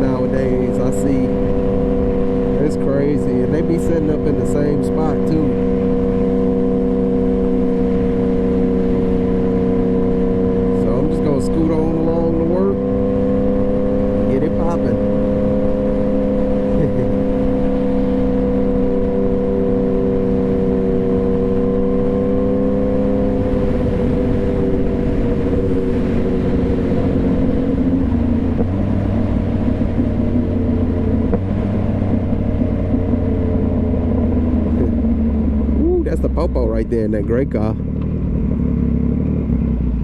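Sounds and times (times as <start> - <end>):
deep rumble: 0.0 - 40.0
motorcycle engine running: 0.0 - 40.0
wind and road noise: 0.0 - 40.0.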